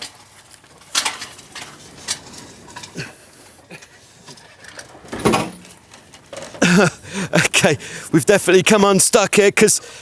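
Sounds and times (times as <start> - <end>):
rigging hardware clicks and knocks: 3.8 - 6.6.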